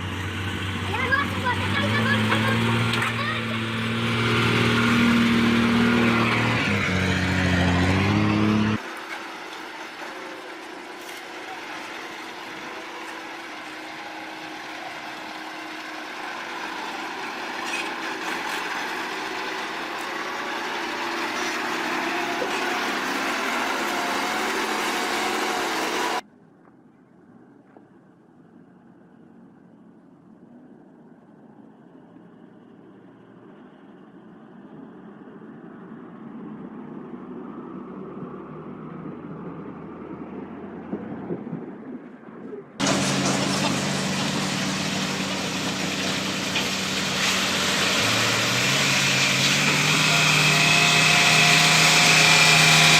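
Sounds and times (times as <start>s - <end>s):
vehicle engine running: 0.0s - 26.2s, 42.8s - 52.9s.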